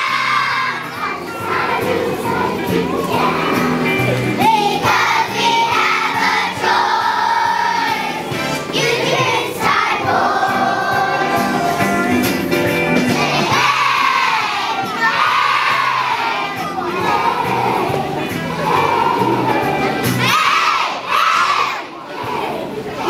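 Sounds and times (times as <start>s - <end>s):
children singing: 0.0s - 23.0s
music playing: 0.0s - 23.0s.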